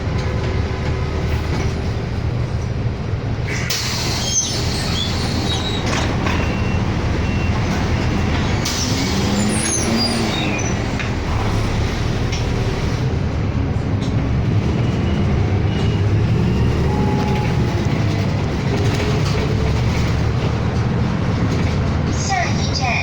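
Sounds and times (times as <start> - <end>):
bus engine and road rumble: 0.0 - 23.0.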